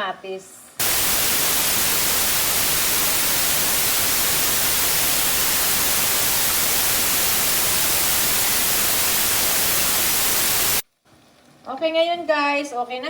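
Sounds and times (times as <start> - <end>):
steady static hiss: 0.8 - 10.8.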